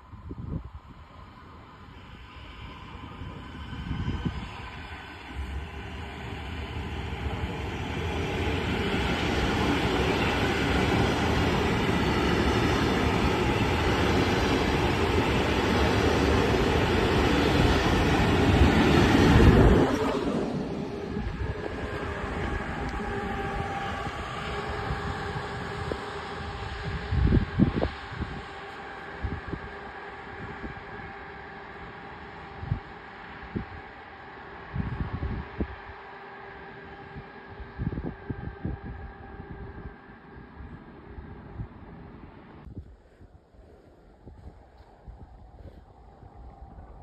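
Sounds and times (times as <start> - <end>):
passenger train rumbling past: 0.0 - 42.7
steady rail noise: 0.0 - 47.0.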